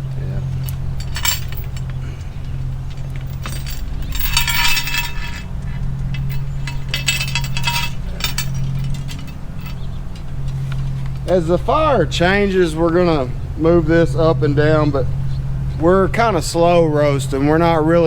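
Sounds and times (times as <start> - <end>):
low hum: 0.0 - 17.0
metal chain clinking and rattling: 0.4 - 11.5.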